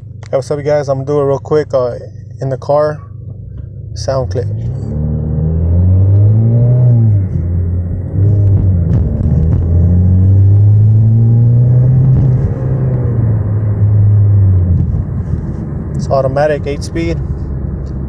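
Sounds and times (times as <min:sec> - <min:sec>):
car engine revving from inside cabin: 0:04.2 - 0:15.9.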